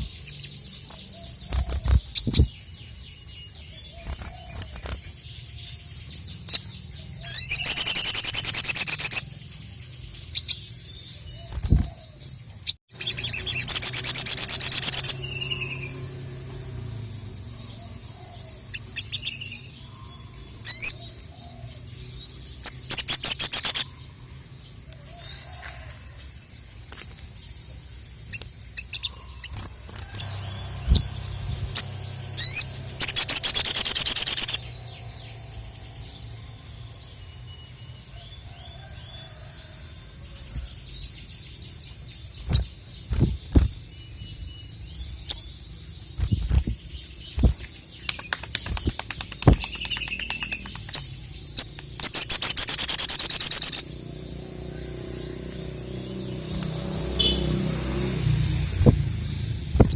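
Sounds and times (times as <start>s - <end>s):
rapid rattling bird trills: 0.0s - 12.3s, 12.9s - 24.2s, 27.5s - 37.3s, 37.9s - 59.9s
bird chirps and clicks: 28.2s - 31.1s, 46.1s - 53.9s, 56.4s - 57.4s, 59.6s - 59.9s.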